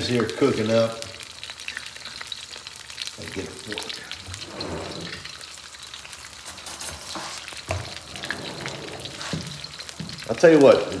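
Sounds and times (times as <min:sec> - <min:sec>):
food frying in oil: 0:00.0 - 0:11.0.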